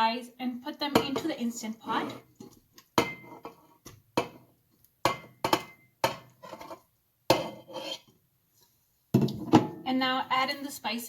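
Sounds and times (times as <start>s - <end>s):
meat knocking in steel pot: 2.9s - 6.4s.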